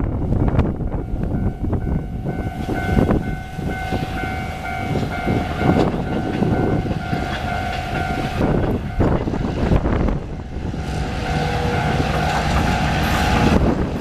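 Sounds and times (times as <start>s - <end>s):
freight train rumbling: 0.0s - 14.0s
steady high warning tone: 0.0s - 14.0s
higher pulsing tone: 0.8s - 14.0s
wheel clacks on rails: 4.0s - 10.3s, 10.9s - 14.0s.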